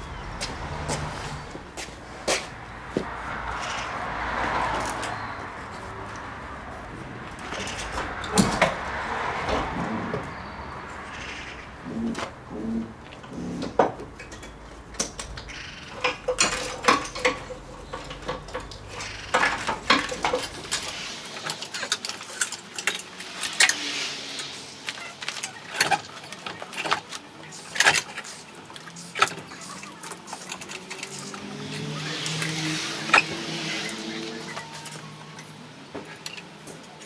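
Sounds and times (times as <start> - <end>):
metal tools clinking: 14.1 - 37.0.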